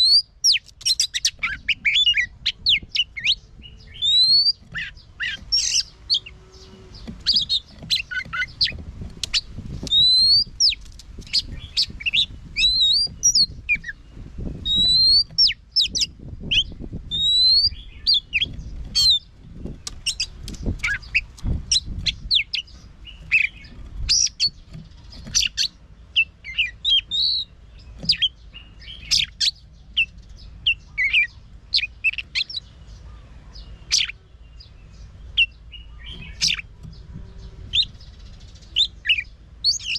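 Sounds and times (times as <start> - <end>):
bird singing whistles: 0.0 - 8.6, 9.3 - 14.0, 14.6 - 19.2, 25.4 - 30.1.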